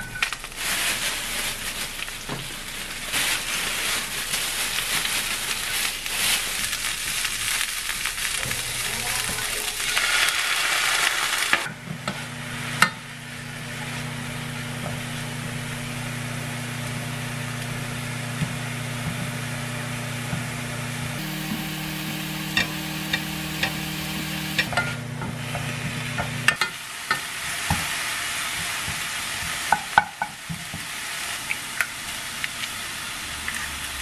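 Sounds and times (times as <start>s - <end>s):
cabbage sizzling in frying pan: 0.1s - 20.2s, 20.9s - 34.0s
plastic bag rustling: 0.2s - 9.6s
low steady hum: 21.2s - 25.1s.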